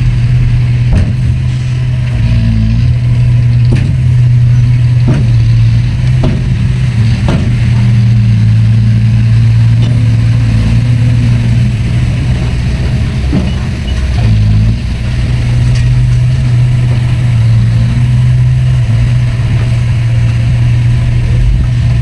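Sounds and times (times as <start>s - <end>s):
diesel engine running: 0.0s - 22.0s
sharp metallic knocks and clanks: 0.8s - 8.6s, 9.5s - 18.8s.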